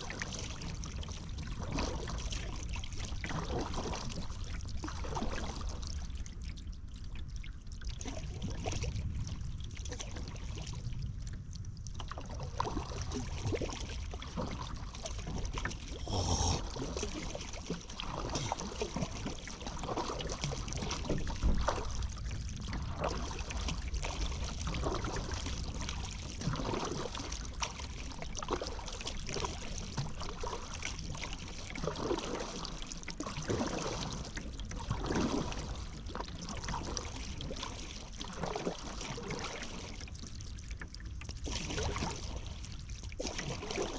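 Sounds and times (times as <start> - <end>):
water lapping against hull: 0.0 - 43.9
paddle strokes splashing: 12.0 - 40.1, 41.4 - 43.9.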